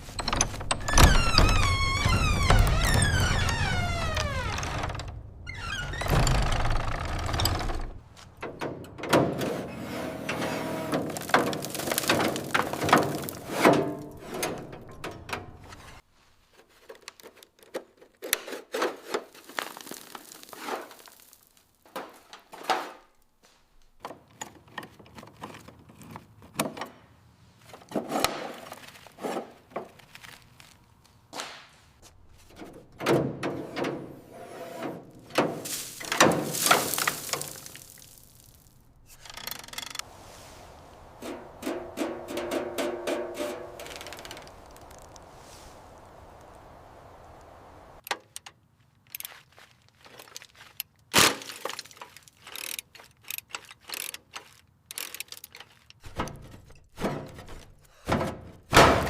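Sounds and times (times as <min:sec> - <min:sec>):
tools clattering and knocking: 0:00.0 - 0:01.8, 0:06.1 - 0:09.7, 0:10.3 - 0:16.0, 0:24.0 - 0:27.0, 0:32.4 - 0:34.2, 0:41.2 - 0:44.9, 0:51.7 - 0:59.0
scraping: 0:09.4 - 0:17.4, 0:31.9 - 0:48.0.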